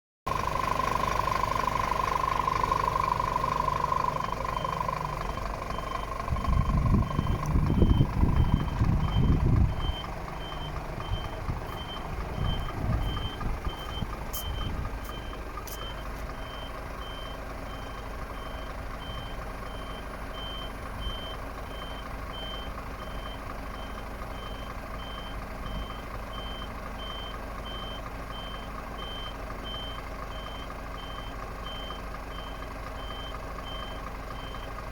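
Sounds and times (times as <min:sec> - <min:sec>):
diesel truck engine starting and idling: 0:00.3 - 0:34.9
steady warning tone: 0:02.6 - 0:19.9
reversing alarm short high beeps: 0:03.1 - 0:34.8.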